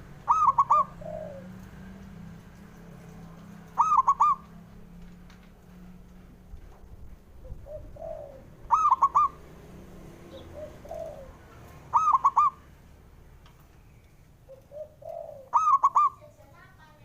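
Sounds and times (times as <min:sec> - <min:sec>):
dove singing clipped notes: 0:00.0 - 0:05.2, 0:07.3 - 0:12.6, 0:13.6 - 0:16.5.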